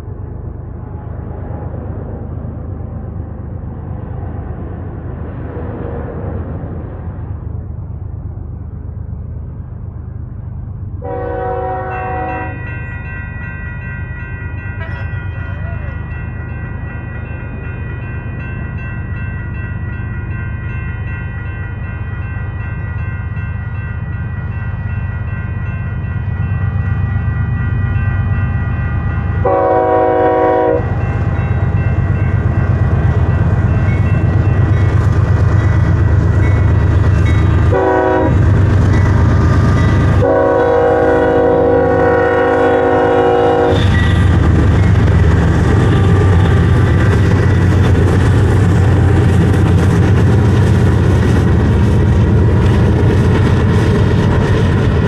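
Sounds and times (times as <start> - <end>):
diesel locomotives rumbling: 0.0 - 55.0
train horn blasts: 11.0 - 12.8, 29.4 - 31.0, 37.7 - 38.4, 40.1 - 44.5, 45.7 - 46.8
railroad crossing bell ringing: 11.0 - 55.0.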